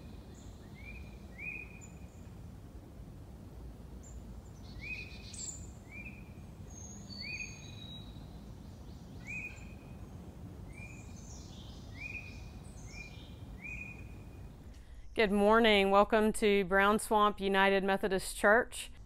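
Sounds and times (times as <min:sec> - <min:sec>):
birds chirping and trilling: 0:00.0 - 0:02.3, 0:04.0 - 0:14.7
low outdoor rumble: 0:00.0 - 0:19.0.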